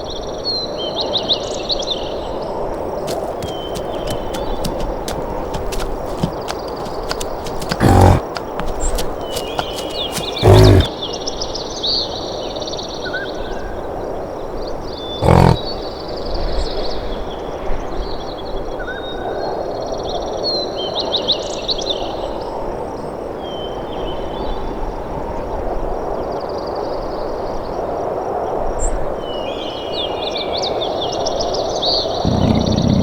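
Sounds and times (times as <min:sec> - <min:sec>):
big cat calling: 0:02.8 - 0:10.9, 0:15.2 - 0:15.8, 0:32.2 - 0:33.0
birds chirping: 0:02.8 - 0:10.9, 0:15.2 - 0:15.8, 0:32.2 - 0:33.0.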